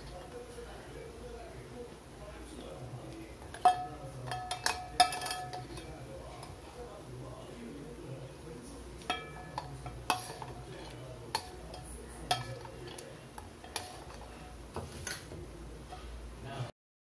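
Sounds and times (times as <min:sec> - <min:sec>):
metal spoon clinking on dishes: 0:03.2 - 0:06.6, 0:09.0 - 0:15.3.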